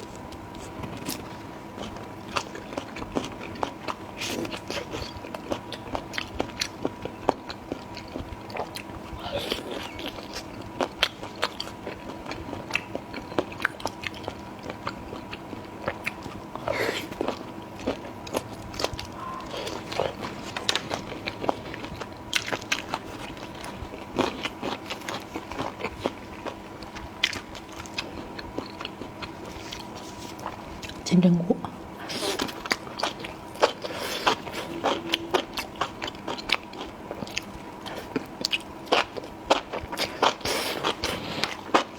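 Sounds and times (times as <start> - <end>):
person chewing food: 0.0 - 31.0, 31.9 - 41.9
faint steady hum: 0.0 - 41.9.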